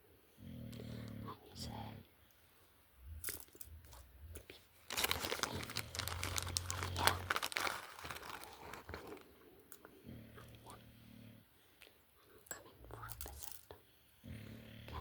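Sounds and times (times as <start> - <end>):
packaging crinkling and tearing: 4.8 - 9.3.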